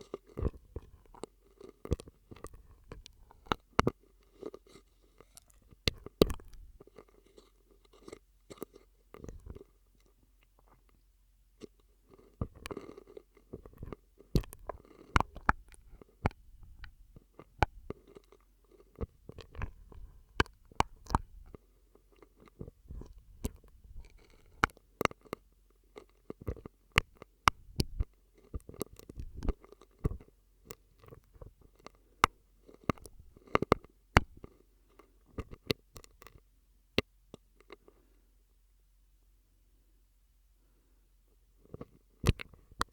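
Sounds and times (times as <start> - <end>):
wet mouth clicks and pops: 13.7 - 17.0, 19.0 - 21.5, 26.0 - 30.3, 32.2 - 34.4, 42.2 - 42.9.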